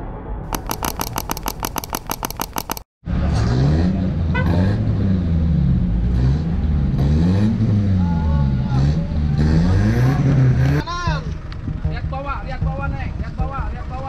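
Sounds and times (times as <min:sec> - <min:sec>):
mouse clicks: 0:00.5 - 0:02.8
off-road vehicle engine revving: 0:03.1 - 0:10.8.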